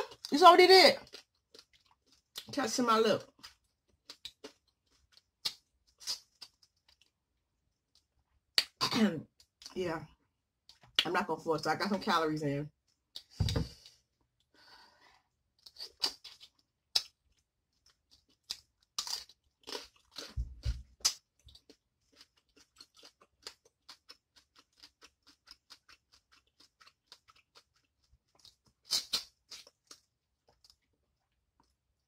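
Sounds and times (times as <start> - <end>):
person chewing shrimp: 1.0 - 2.5, 3.3 - 8.8, 15.4 - 32.0.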